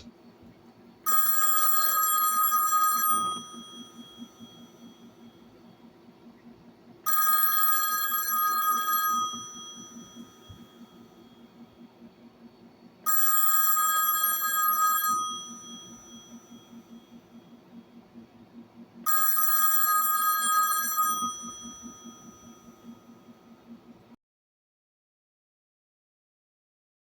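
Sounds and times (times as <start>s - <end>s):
telephone bell ringing: 1.0s - 5.5s, 7.0s - 11.6s, 13.0s - 17.2s, 19.0s - 23.4s.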